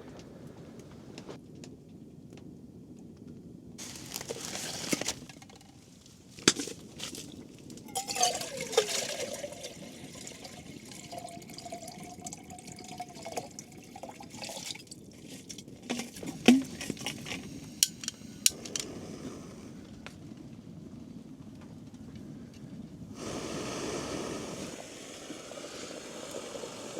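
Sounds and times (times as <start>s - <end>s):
water pouring with ice: 6.9s - 17.5s
gurgle of water: 7.2s - 17.2s
hard containers clinking together: 7.9s - 14.8s, 15.4s - 18.6s.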